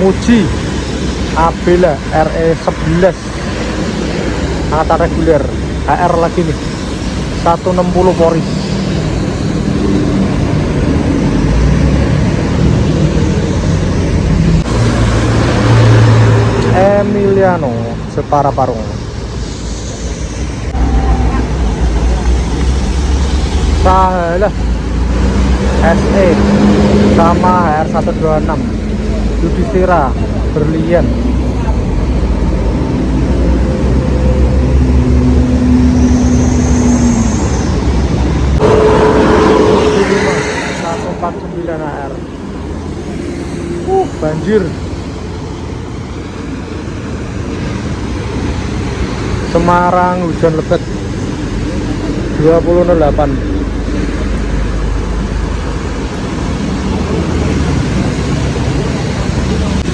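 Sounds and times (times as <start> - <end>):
large vehicle engine drone: 0.0 - 59.9
traffic road noise: 0.0 - 59.9
harsh noise with steady tone: 34.1 - 59.9.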